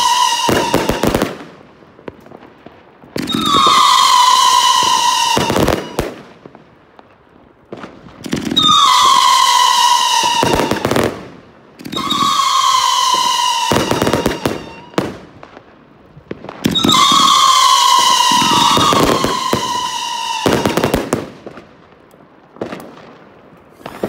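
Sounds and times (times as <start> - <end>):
firework whistle: 0.0 - 1.4, 3.2 - 6.3, 8.4 - 11.2, 11.8 - 15.2, 16.6 - 21.2
firework bangs and crackling: 0.0 - 24.0.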